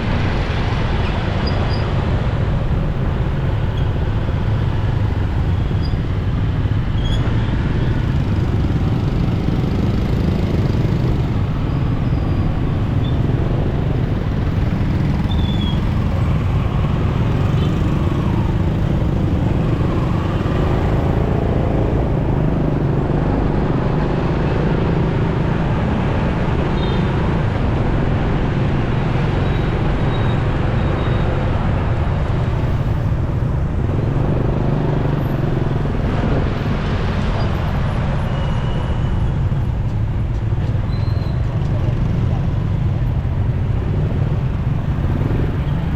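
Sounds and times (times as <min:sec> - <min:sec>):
other vehicles passing: 0:00.0 - 0:45.9.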